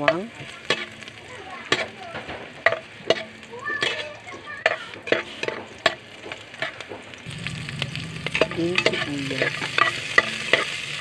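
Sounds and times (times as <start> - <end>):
garlic sizzling in hot oil: 0.0 - 11.0
utensil scraping a metal pot: 6.6 - 11.0
low hum: 7.3 - 10.2.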